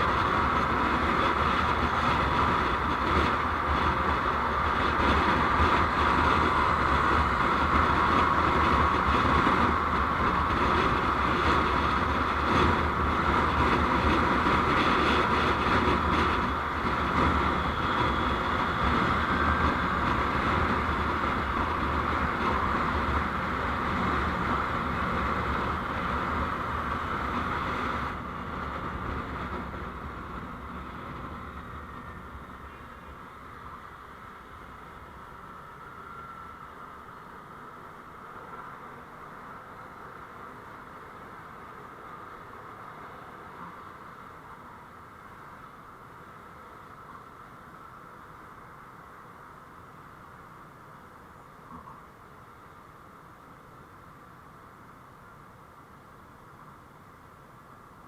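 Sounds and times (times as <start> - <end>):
vehicle road and wind noise: 0.0 - 58.0.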